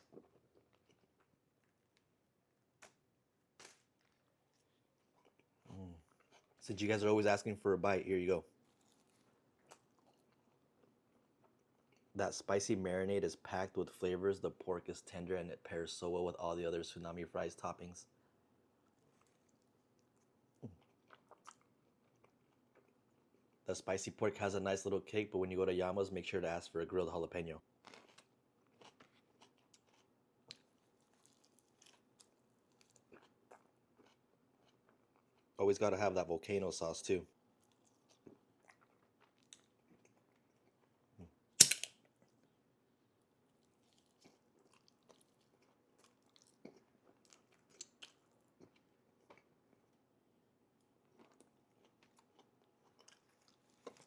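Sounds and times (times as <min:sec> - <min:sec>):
close-up chewing: 0:27.9 - 0:35.6, 0:37.6 - 0:41.3, 0:43.5 - 0:50.0, 0:51.0 - 0:54.0
mouth clicks and crunches: 0:43.6 - 0:49.5.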